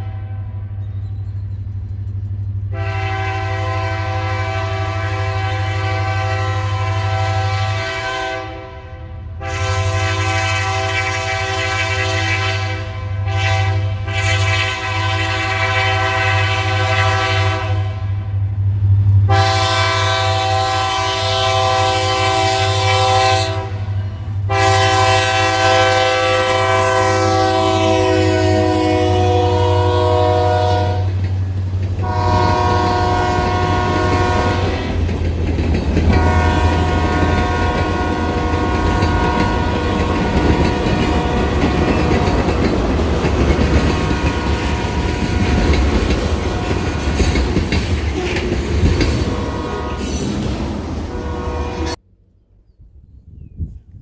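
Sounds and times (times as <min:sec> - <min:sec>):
locomotive air horn blasts: 0:00.0 - 0:00.8, 0:02.7 - 0:18.5, 0:19.2 - 0:31.3, 0:32.0 - 0:35.0, 0:36.0 - 0:43.0, 0:43.6 - 0:52.0
locomotive engine rumble: 0:14.0 - 0:51.8.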